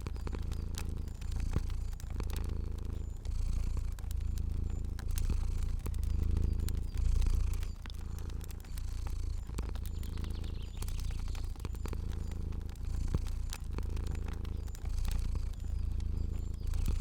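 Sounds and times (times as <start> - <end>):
cat purring: 0.0 - 17.0
fire crackling and popping: 0.0 - 17.0.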